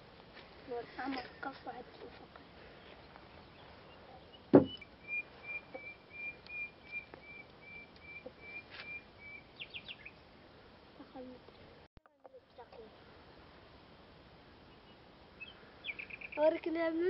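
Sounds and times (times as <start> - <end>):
sharp knock: 4.5 - 4.8.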